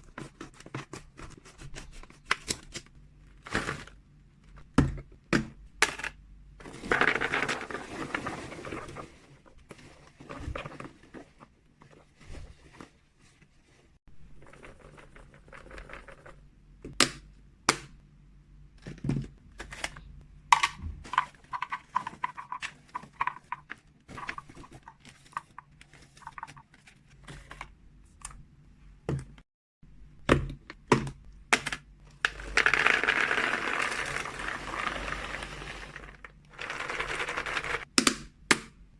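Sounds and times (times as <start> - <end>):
plastic containers clicking: 18.9 - 26.8.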